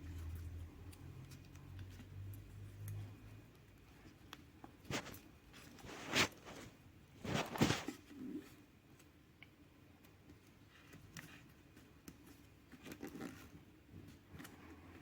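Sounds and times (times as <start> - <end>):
scraping rustling handling noises: 0.0 - 9.1.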